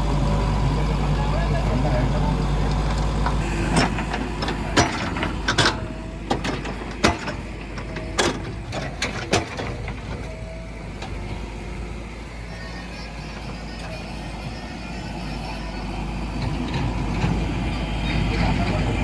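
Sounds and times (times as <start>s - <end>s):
low machine hum: 0.0s - 19.0s
metallic knocks and clanks: 2.7s - 11.4s.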